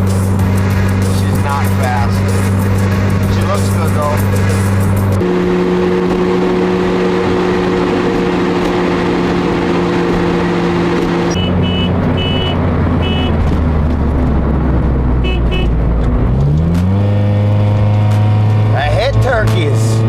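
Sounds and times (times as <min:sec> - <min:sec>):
car engine hum: 0:00.0 - 0:20.0
road noise: 0:00.0 - 0:20.0.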